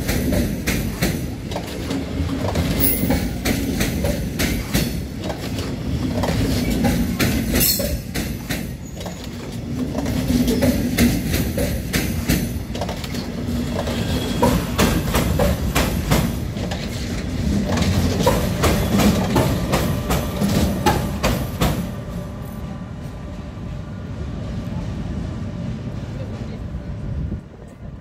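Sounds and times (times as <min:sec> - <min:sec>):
train wheels clattering over rail joints: 0:00.0 - 0:22.0
train low rumble: 0:00.0 - 0:28.0.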